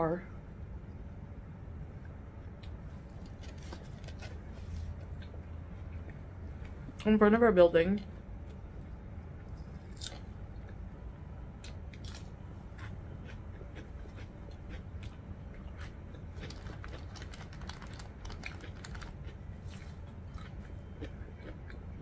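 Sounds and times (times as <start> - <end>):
steady low hum: 0.0 - 22.0
chewing and biting: 11.6 - 22.0.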